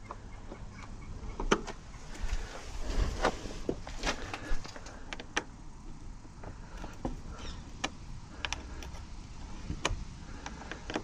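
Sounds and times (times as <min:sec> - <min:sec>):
door latch metallic clicks and knocks: 0:06.7 - 0:09.2.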